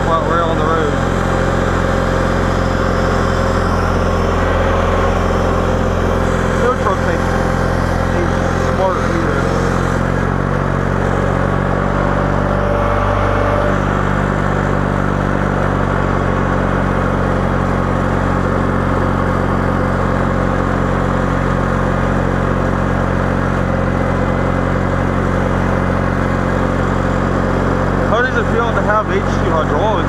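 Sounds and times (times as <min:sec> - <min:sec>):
garden tractor engine running: 0:00.0 - 0:30.0.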